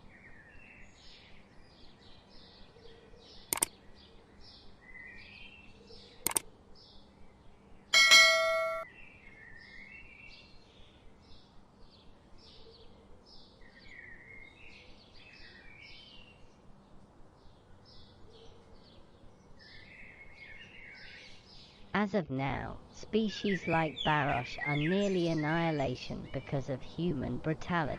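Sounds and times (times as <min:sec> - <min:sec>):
small birds chirping: 0:00.0 - 0:07.4, 0:09.4 - 0:27.9
loud metallic ding: 0:08.0 - 0:08.8.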